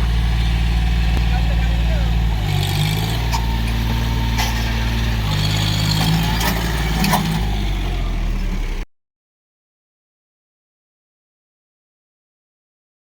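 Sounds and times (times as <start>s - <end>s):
tractor diesel engine running: 0.0s - 8.8s.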